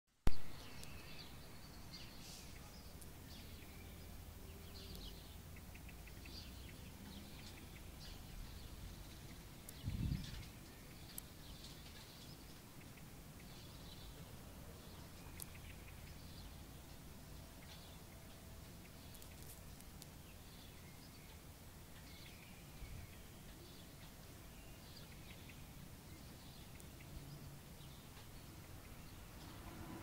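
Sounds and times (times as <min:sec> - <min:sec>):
faint bird chirps: 0:00.3 - 0:29.7
low steady hum: 0:00.3 - 0:30.0.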